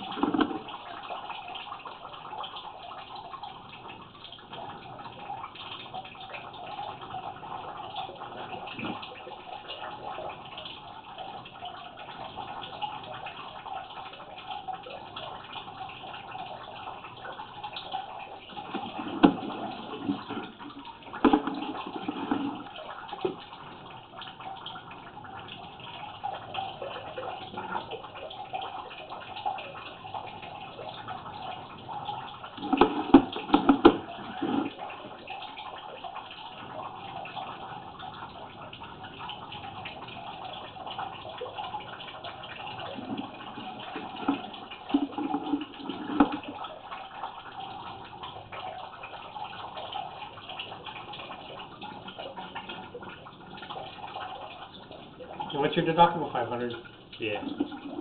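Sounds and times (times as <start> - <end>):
running water: 0.0 - 58.0.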